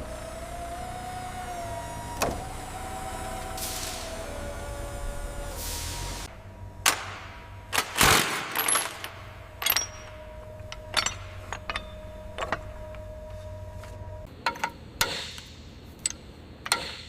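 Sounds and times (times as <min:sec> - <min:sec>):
metal objects clinking and knocking: 0:07.8 - 0:15.4.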